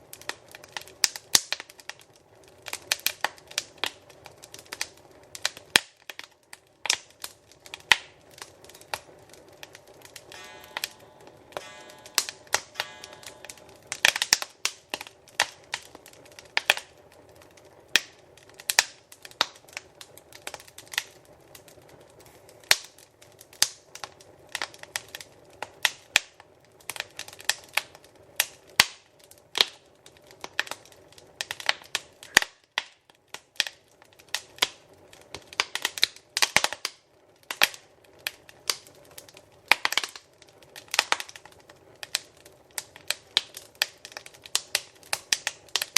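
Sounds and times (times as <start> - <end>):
wood fire crackling: 0.0 - 45.9
low rush of flames: 6.5 - 25.8.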